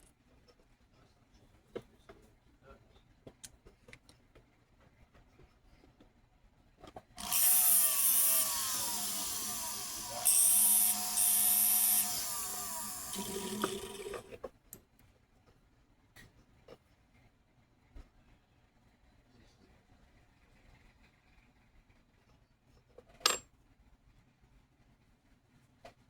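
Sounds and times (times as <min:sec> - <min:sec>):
high hissing grinding: 0:07.2 - 0:14.3
rotary tool motor running: 0:07.2 - 0:14.4.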